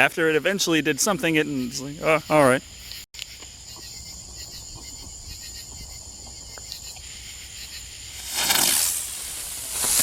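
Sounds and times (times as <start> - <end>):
crickets trilling: 0.0 - 10.0
firework hissing: 8.0 - 10.0.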